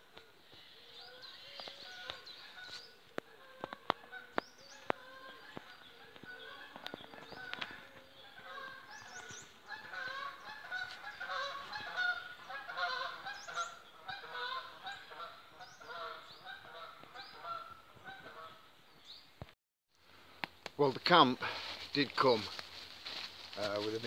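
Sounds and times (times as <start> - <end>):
geese honking: 1.1 - 18.6.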